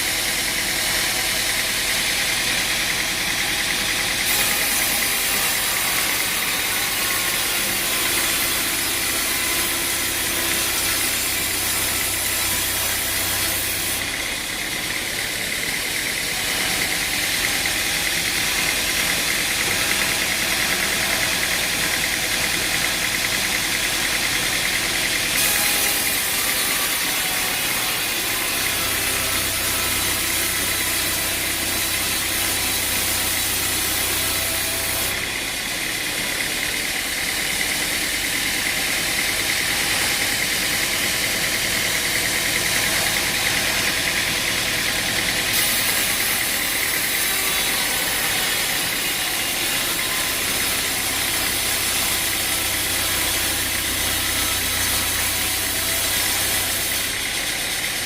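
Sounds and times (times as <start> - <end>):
machine engine running: 8.0 - 27.1, 27.7 - 47.2.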